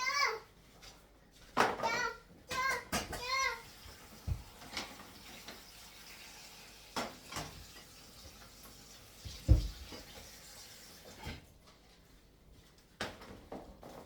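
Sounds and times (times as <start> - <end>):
water running from tap: 3.3 - 11.4.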